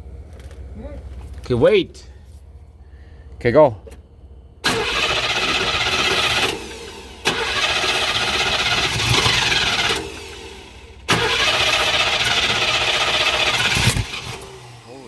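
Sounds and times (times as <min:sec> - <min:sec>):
car starter motor cranking: 0:04.6 - 0:15.0.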